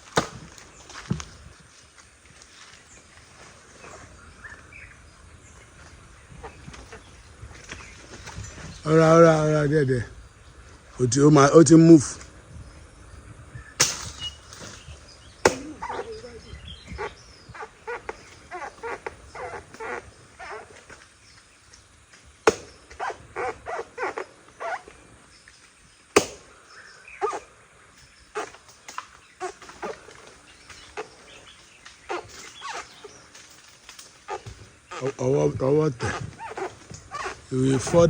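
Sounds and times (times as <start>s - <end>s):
tree trunk being chopped: 0.0s - 1.3s, 13.8s - 16.0s, 22.4s - 24.2s, 26.1s - 26.5s.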